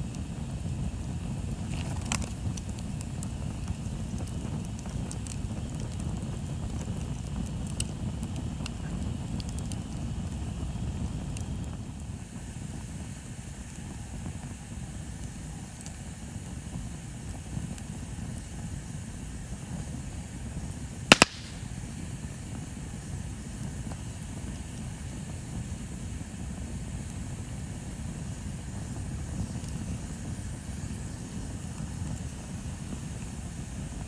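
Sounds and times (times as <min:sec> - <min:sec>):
bonfire crackling: 0:00.1 - 0:34.0.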